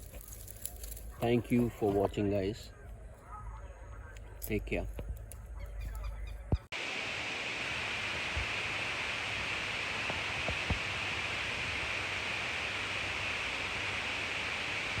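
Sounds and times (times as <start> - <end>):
steady hiss: 6.8 - 15.0.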